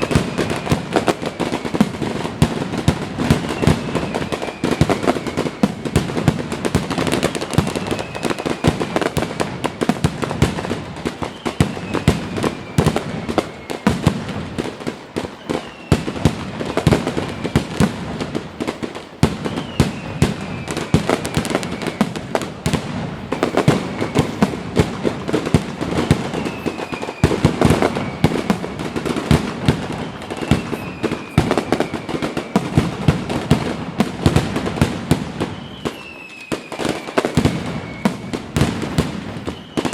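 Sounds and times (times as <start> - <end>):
falling whistle tones: 0.0 - 2.3, 3.2 - 6.3, 7.3 - 10.1, 11.2 - 14.3, 15.3 - 17.9, 19.3 - 22.5, 23.3 - 32.9, 35.4 - 38.6, 39.3 - 39.9
fireworks cracks and bangs: 0.0 - 39.9.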